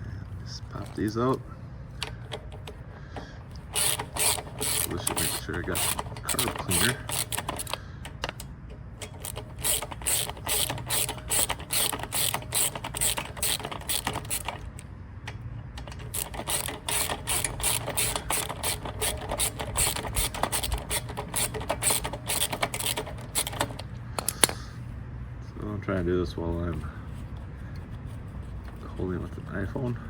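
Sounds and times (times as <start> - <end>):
socket ratchet clicking: 3.5 - 24.7.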